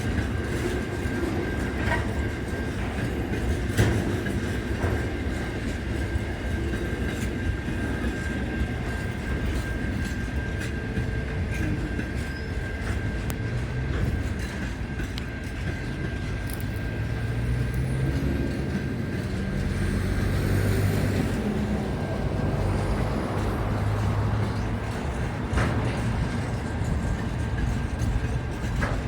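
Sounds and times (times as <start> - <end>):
train engine rumble: 0.0 - 29.0.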